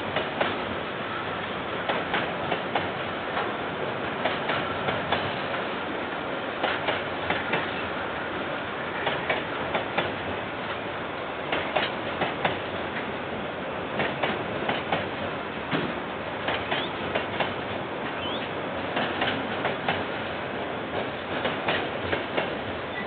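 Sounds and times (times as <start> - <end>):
train wagons rumbling past: 0.0 - 23.0
wheels clacking over rail joint: 1.8 - 5.7, 6.6 - 7.9, 9.0 - 10.8, 11.5 - 13.1, 14.0 - 23.0.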